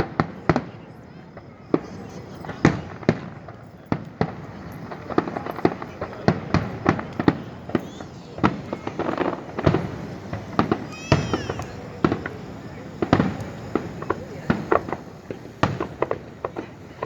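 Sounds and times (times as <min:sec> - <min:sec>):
fireworks bangs and cracks: 0:00.0 - 0:17.0.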